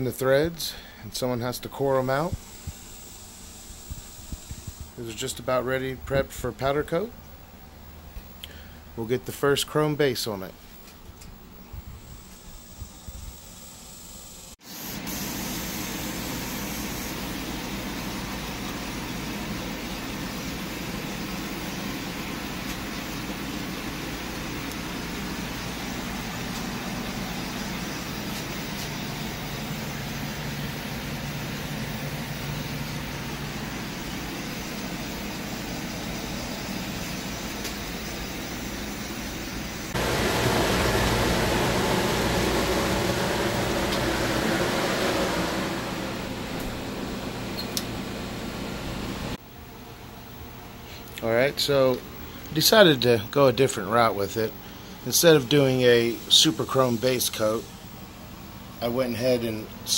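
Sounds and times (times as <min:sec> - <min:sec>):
spray gun air rushing: 0:02.3 - 0:05.0, 0:12.2 - 0:18.4, 0:20.7 - 0:48.2
booth fan: 0:14.8 - 0:59.9.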